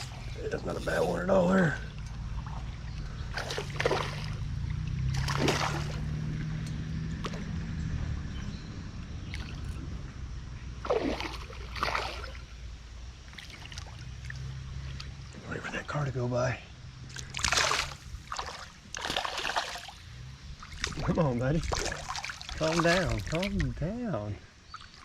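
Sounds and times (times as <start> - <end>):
passing car rumble: 0.0 - 13.2, 13.9 - 18.4, 19.8 - 24.3
fish splashing in water: 2.2 - 6.2, 10.8 - 12.5, 17.1 - 23.7.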